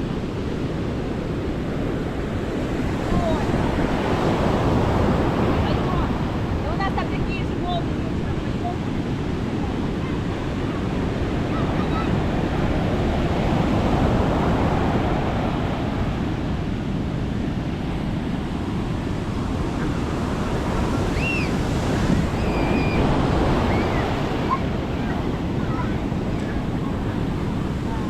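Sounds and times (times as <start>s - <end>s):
sea surf breaking: 0.0s - 28.0s
wind buffeting microphone: 0.0s - 28.0s
faint high chirps: 21.1s - 21.6s, 22.4s - 23.0s.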